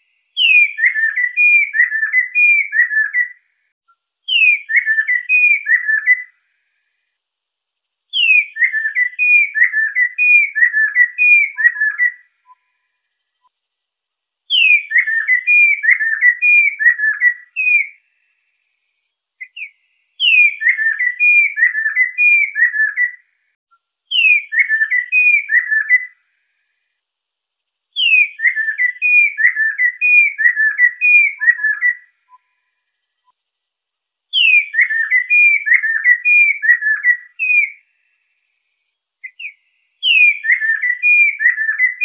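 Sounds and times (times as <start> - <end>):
bird singing whistled phrases: 0.4 - 6.4, 8.1 - 12.9, 14.5 - 18.0, 19.4 - 26.2, 28.0 - 32.7, 34.3 - 38.0, 39.2 - 42.0.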